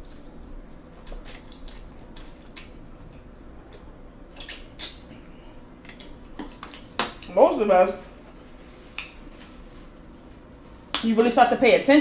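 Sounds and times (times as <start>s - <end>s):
person chewing noodles: 0.0s - 6.9s
mouth clicks and smacks: 1.0s - 5.1s, 5.8s - 7.3s.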